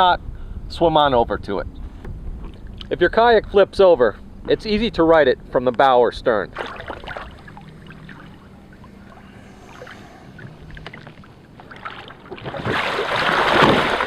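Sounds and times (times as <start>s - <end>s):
water sloshing and splashing: 6.5s - 14.0s
splashing rush of water: 9.0s - 14.0s.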